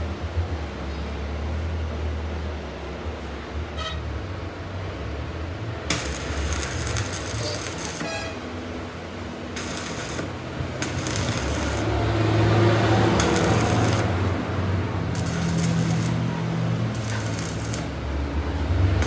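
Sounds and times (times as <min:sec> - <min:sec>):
low machine hum: 0:05.6 - 0:18.6
hissing scraping noise: 0:05.9 - 0:08.4, 0:09.6 - 0:18.2.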